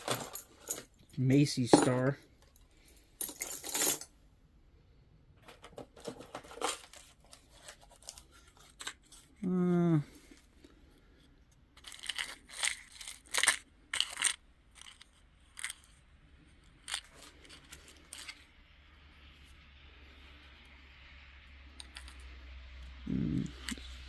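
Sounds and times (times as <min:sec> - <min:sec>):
jewelry rustling and clicking: 0:00.0 - 0:04.1, 0:11.4 - 0:18.8, 0:21.7 - 0:24.0.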